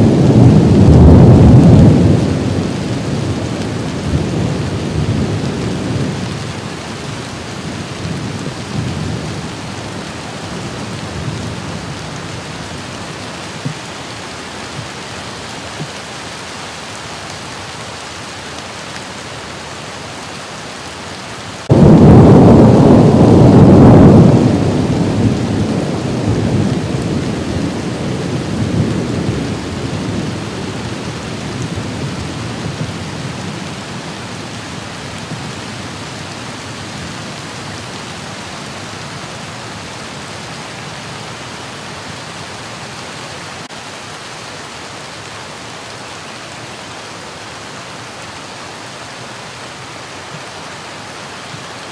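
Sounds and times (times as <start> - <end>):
loud thunderclap: 0.0 - 3.4, 21.6 - 30.8
low rumbling thunder: 0.0 - 13.8, 21.6 - 40.5
steady rain: 0.0 - 51.9.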